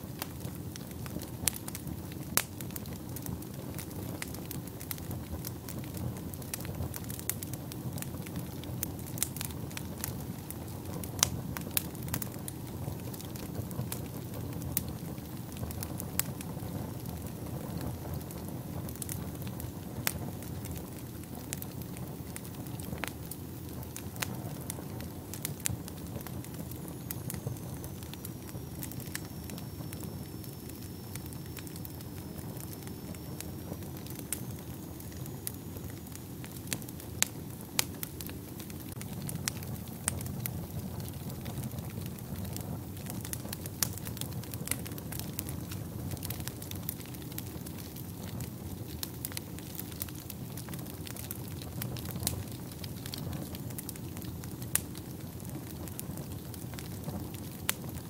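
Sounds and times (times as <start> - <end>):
low rumble of flames: 0.0 - 58.0
wood fire crackling: 0.0 - 58.0
faint high whistle: 26.9 - 36.1.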